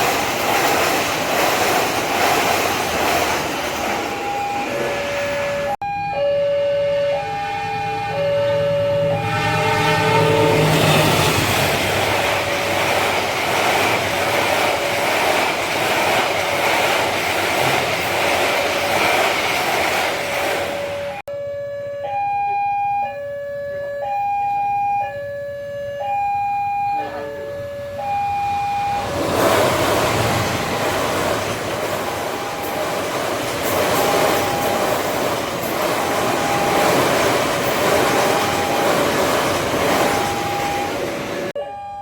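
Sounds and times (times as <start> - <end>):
train wheels rumbling on rails: 0.0 - 5.8, 7.5 - 21.3, 27.0 - 41.6
level crossing alarm two tones: 4.0 - 11.6, 21.1 - 29.2, 36.3 - 42.0.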